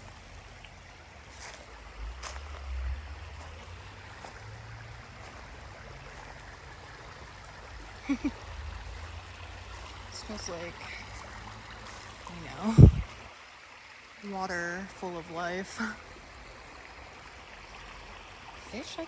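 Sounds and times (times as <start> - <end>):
creek water running: 0.0 - 19.0
wind rumble on microphone: 12.6 - 13.3
short low sounds: 12.8 - 13.1.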